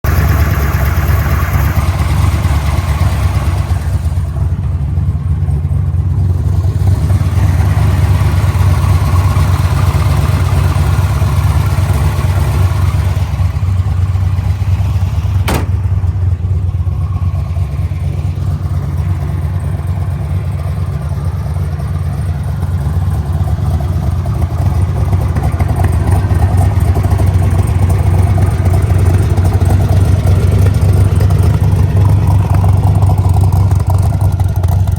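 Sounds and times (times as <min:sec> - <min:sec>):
vvee engine idling: 0:00.0 - 0:34.9.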